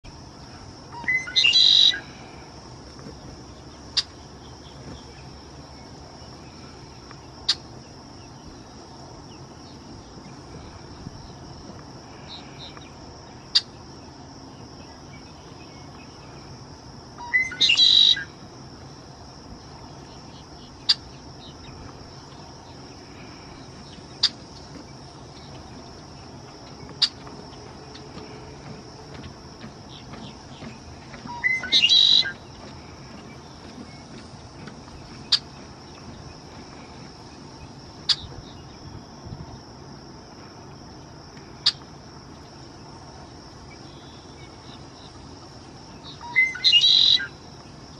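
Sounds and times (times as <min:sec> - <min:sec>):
blackbird singing: 0:00.9 - 0:02.1, 0:17.2 - 0:18.3, 0:29.8 - 0:36.2, 0:46.0 - 0:47.4.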